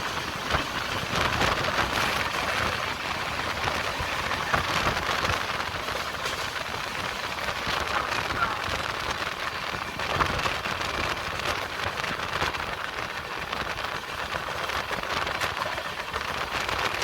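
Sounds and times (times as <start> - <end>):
rain and wind rushing: 0.0 - 17.0.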